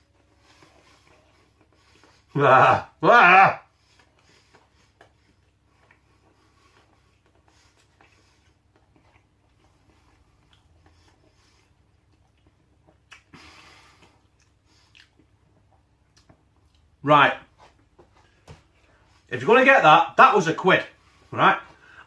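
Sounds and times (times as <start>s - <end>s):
mouth clicks from eating: 13.0s - 13.3s.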